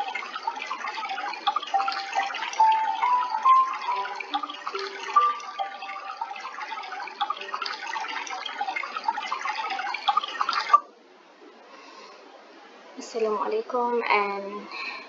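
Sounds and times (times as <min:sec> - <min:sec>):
water trickling and dripping: 0:00.0 - 0:10.9.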